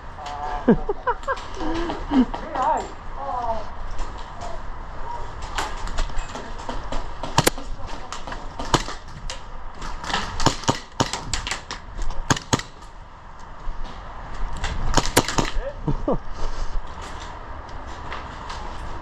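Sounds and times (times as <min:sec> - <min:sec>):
airsoft gunfire snaps: 0:07.4 - 0:07.6, 0:10.4 - 0:12.8, 0:14.9 - 0:15.6.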